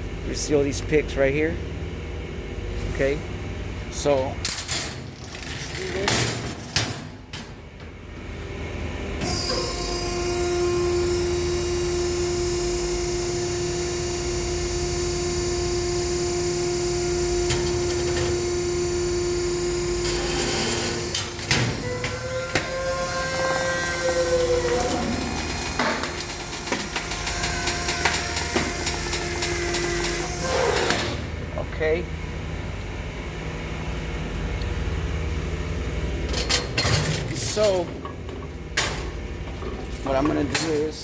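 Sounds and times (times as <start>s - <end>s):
hydraulic press whining: 9.2s - 31.4s.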